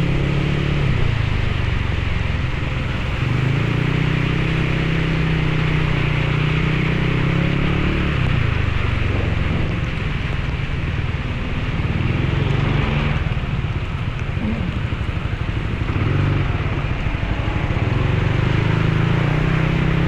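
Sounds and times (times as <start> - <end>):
motorcycle engine running: 0.0 - 20.0
wind and rain noise: 0.0 - 20.0.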